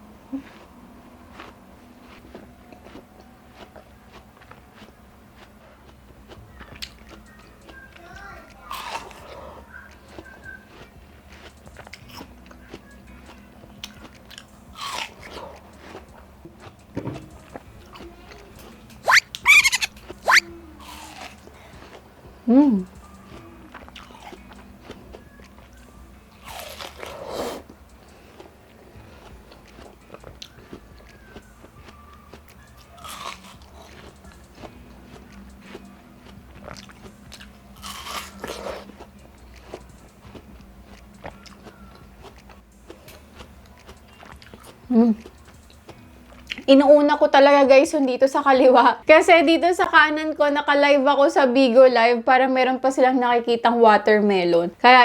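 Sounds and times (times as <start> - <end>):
chewing watermelon: 0.3 - 46.7
mouth clicks: 19.0 - 21.4.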